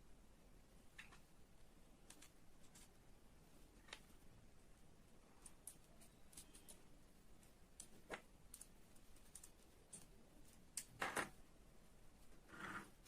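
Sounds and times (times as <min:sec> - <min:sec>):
clicks and taps of small parts: 0:02.0 - 0:02.9.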